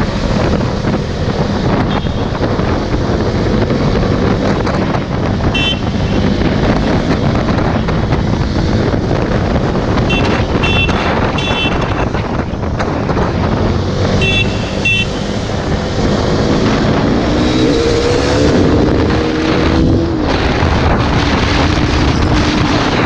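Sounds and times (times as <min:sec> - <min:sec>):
motorcycle engine running: 0:00.0 - 0:17.6
wind buffeting microphone: 0:00.0 - 0:23.0.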